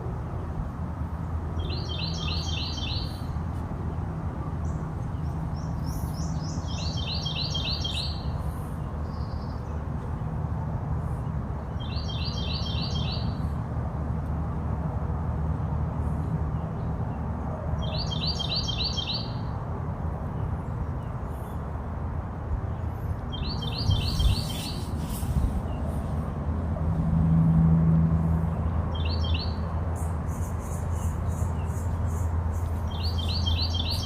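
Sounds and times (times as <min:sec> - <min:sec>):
songbird chirping: 0:01.6 - 0:03.4, 0:04.6 - 0:09.7, 0:28.6 - 0:34.0.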